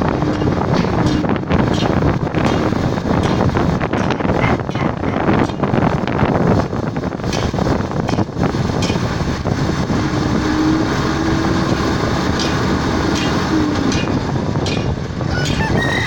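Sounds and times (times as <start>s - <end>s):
heavy machinery running: 0.0s - 16.0s.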